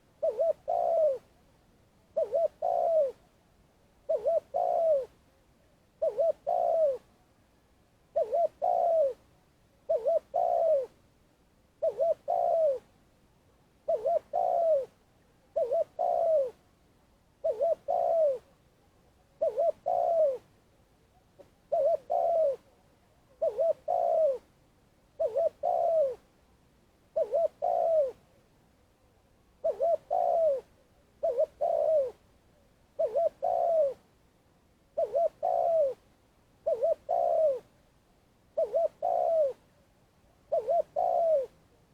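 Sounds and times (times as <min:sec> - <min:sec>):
dove cooing: 0:00.0 - 0:01.4, 0:02.2 - 0:03.3, 0:04.0 - 0:05.2, 0:06.0 - 0:07.1, 0:08.1 - 0:09.3, 0:09.9 - 0:11.0, 0:11.8 - 0:13.0, 0:13.8 - 0:16.6, 0:17.4 - 0:18.6, 0:19.4 - 0:20.5, 0:21.4 - 0:24.5, 0:25.2 - 0:26.3, 0:27.1 - 0:28.2, 0:29.6 - 0:32.2, 0:32.9 - 0:34.1, 0:34.9 - 0:36.0, 0:36.6 - 0:37.7, 0:38.5 - 0:39.6, 0:40.5 - 0:41.6.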